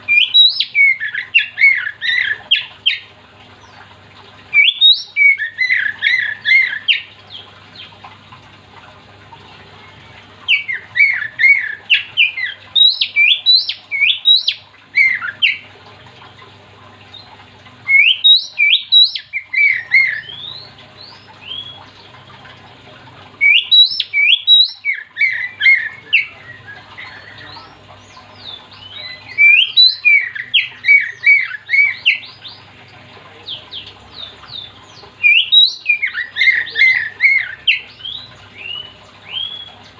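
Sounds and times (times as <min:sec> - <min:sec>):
magpie-robin singing whistled notes: 0:00.1 - 0:03.0, 0:04.5 - 0:07.1, 0:10.5 - 0:15.6, 0:17.9 - 0:21.8, 0:23.4 - 0:32.6, 0:34.5 - 0:39.7.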